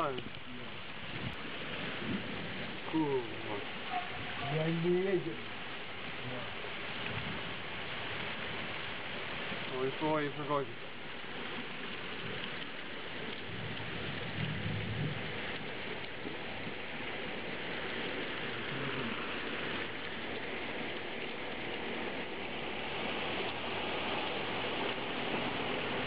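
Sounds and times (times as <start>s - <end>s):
torrential rain pouring: 0.0s - 26.0s
low thunder rumble: 13.2s - 26.0s.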